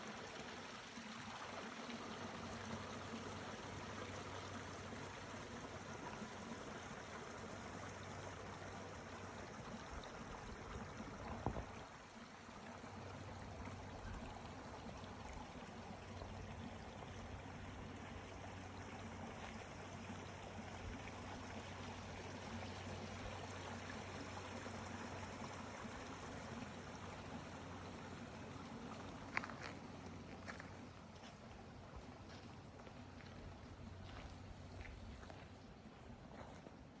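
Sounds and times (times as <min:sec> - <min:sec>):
stream flowing: 0:00.0 - 0:37.0.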